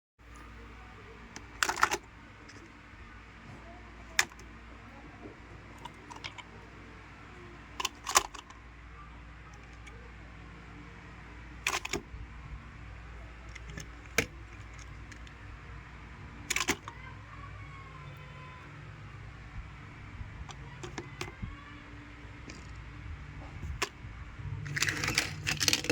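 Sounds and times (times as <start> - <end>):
low steady hum: 0.2 - 25.9
small hard objects clicking: 24.7 - 25.9.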